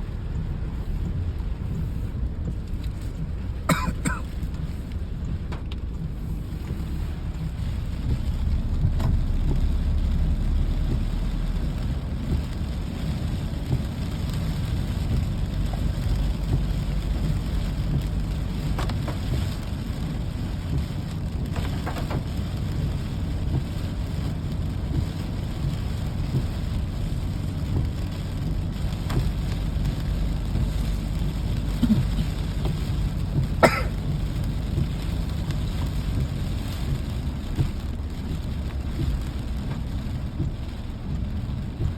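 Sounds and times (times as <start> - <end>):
low rumble: 0.0 - 18.8
rain: 0.0 - 41.9.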